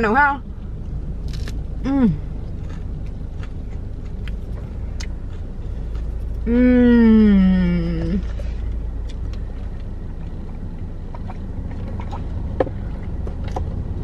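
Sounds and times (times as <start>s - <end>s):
low rumble inside car: 0.0s - 14.0s
person humming mmm: 1.8s - 2.2s, 6.4s - 8.5s
chewing with wet mouth clicks: 2.5s - 6.4s, 8.7s - 13.9s.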